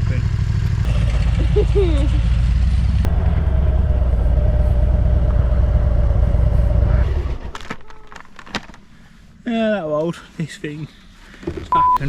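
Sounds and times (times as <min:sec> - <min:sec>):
motorcycle engine rumbling: 0:00.0 - 0:08.9.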